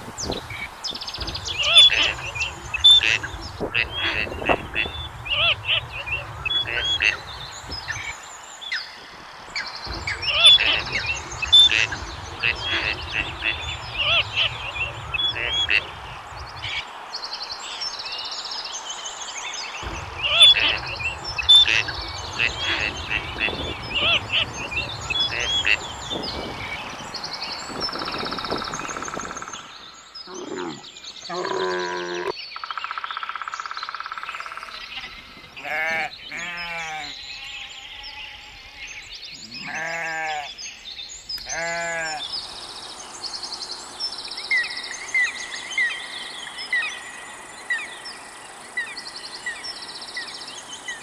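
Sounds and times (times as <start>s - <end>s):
high peeping calls: 0.0s - 51.0s
sheep bleating: 35.6s - 40.5s, 41.4s - 42.2s.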